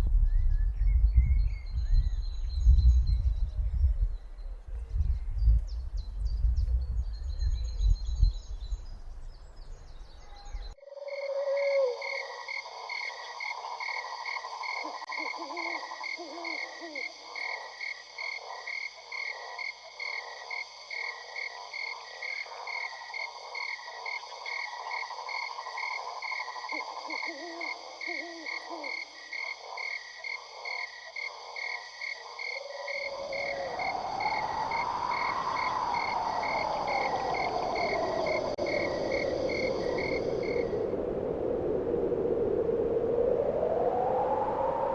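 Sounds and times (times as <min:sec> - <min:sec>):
frogs croaking: 0:10.1 - 0:42.3.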